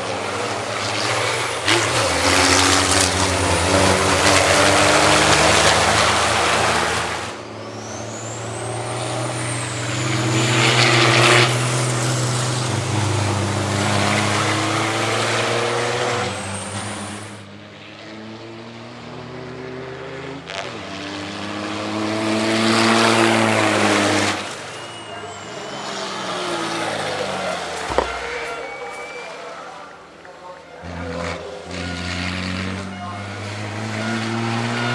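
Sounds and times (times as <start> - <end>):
diesel trucks driving past: 21.3 - 34.9.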